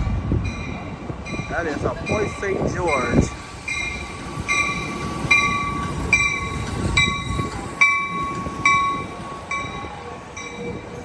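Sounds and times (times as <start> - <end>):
train rumble: 0.0 - 11.0
train warning bell ringing: 0.0 - 11.0.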